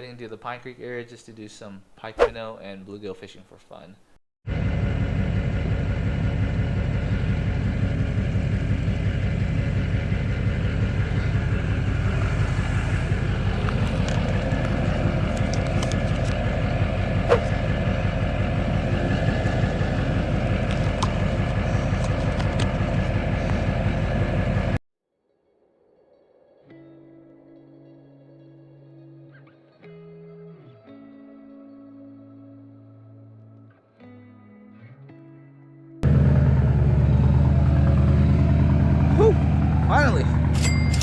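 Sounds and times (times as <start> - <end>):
engine running: 4.5 - 24.8, 36.0 - 41.0.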